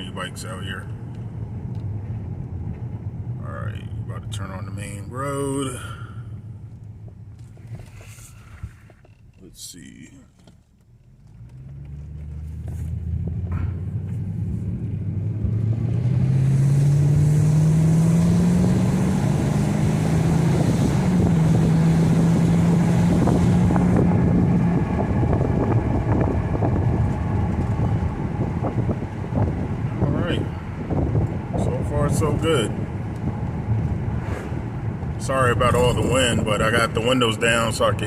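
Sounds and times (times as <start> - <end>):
car engine accelerating: 10.4 - 38.0
wind rushing through windows: 12.3 - 38.0.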